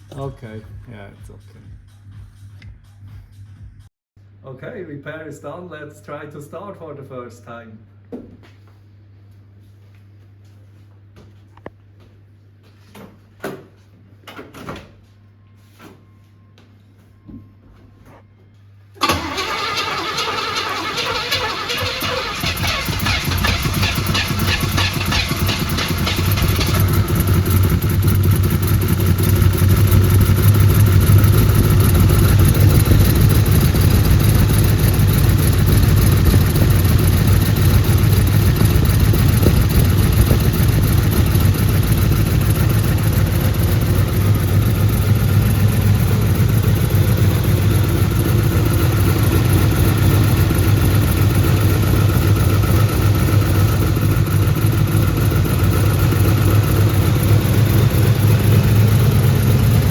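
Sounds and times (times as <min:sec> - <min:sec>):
engine running steadily: 0:19.0 - 0:59.9.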